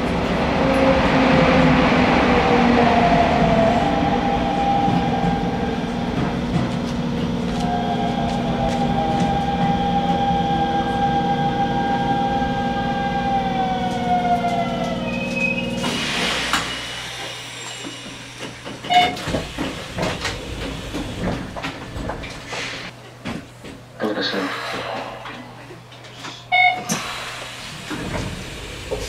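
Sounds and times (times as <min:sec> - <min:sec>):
train traction motors whining: 0:03.4 - 0:22.4
clicks and knocks from train: 0:04.8 - 0:09.8, 0:15.8 - 0:23.9.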